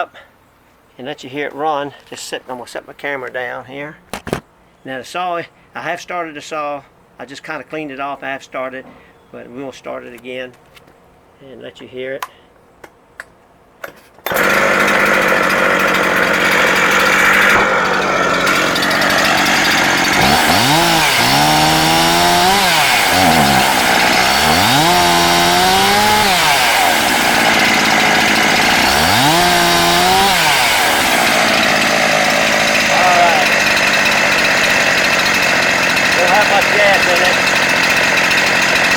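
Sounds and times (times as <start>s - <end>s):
chainsaw engine revving: 14.3s - 38.9s.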